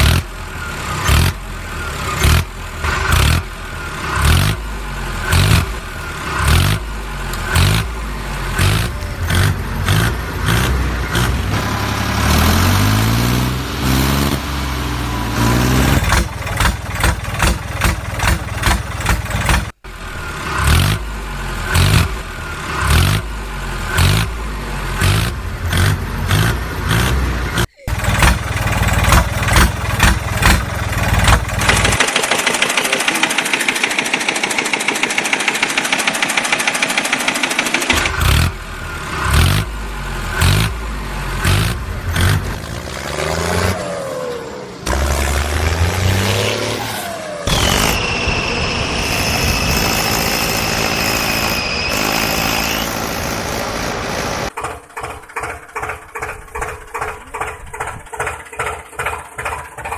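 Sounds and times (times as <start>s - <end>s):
engine chugging: 15.5s - 20.3s, 23.7s - 42.8s, 47.5s - 59.9s
high-pitched whine: 47.5s - 54.4s.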